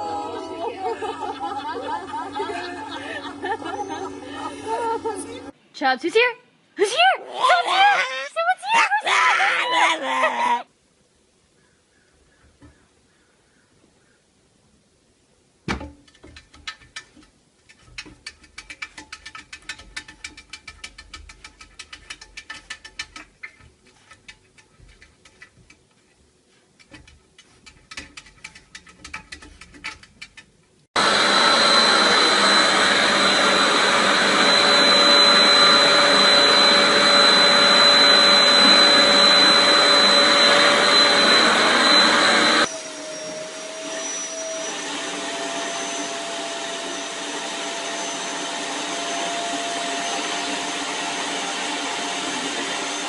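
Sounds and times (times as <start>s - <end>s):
motorised appliance whining: 0.0s - 5.6s, 31.0s - 53.0s.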